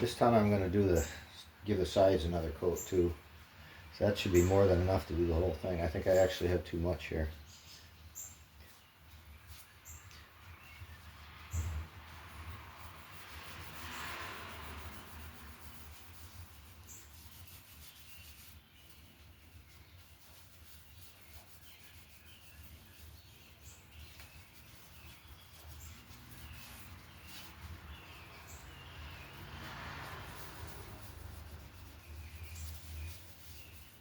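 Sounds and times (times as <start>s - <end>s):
birds chirping: 0.0s - 14.1s, 15.5s - 34.0s
cloth rubbing wood: 12.2s - 34.0s.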